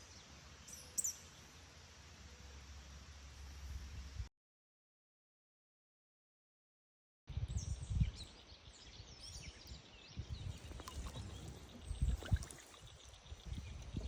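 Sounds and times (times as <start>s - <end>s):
small birds chirping: 0.0s - 1.6s, 7.5s - 14.0s
faint outdoor hiss: 0.0s - 4.3s.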